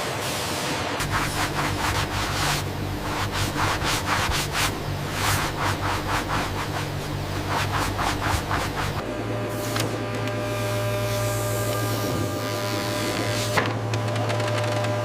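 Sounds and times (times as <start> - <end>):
rubbing strokes: 1.0 - 9.0
low machine hum: 1.0 - 15.0.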